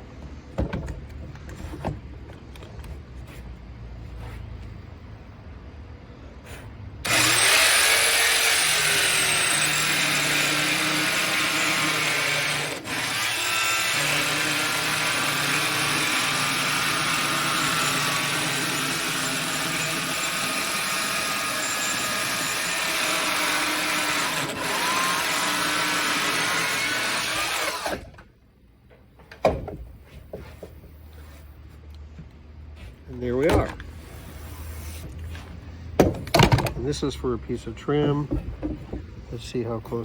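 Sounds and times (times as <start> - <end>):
circular saw cutting wood: 7.0 - 28.1.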